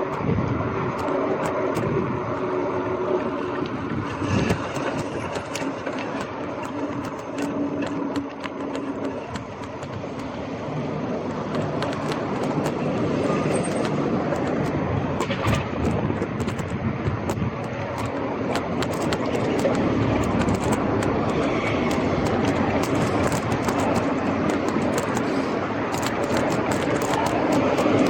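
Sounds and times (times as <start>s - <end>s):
bike rattles and clicks: 0.0s - 28.0s
bike tyres rumbling on road: 0.0s - 28.0s.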